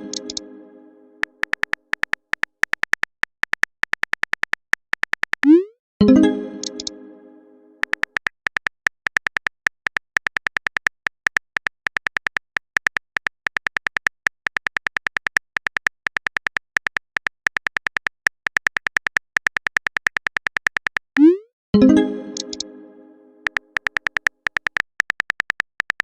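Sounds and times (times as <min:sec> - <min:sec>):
keyboard typing clicks: 0:00.0 - 0:00.5, 0:01.2 - 0:07.0, 0:07.8 - 0:22.8, 0:23.4 - 0:26.0.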